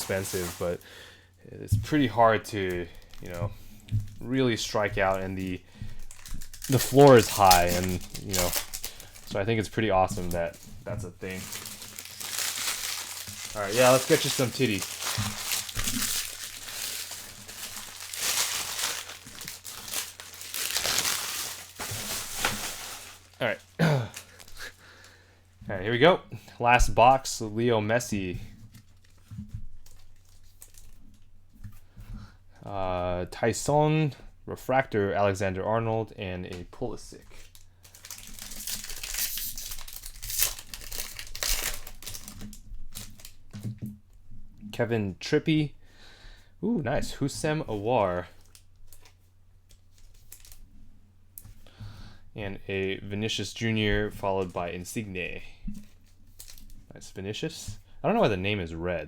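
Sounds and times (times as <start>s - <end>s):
packaging crinkling and tearing: 0.0s - 0.9s, 2.5s - 24.8s, 28.8s - 31.0s, 37.3s - 43.7s, 48.4s - 50.6s, 55.8s - 56.8s.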